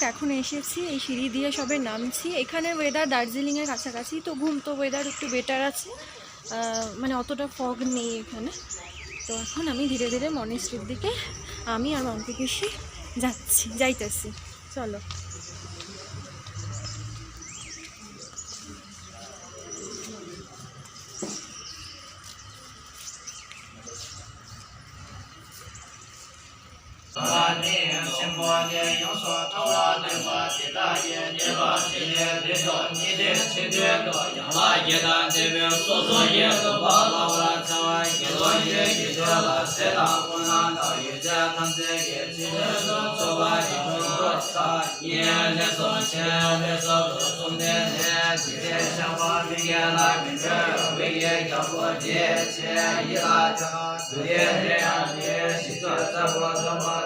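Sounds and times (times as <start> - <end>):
sustained drone: 26.3 - 57.0
chanted vocal: 27.1 - 57.0.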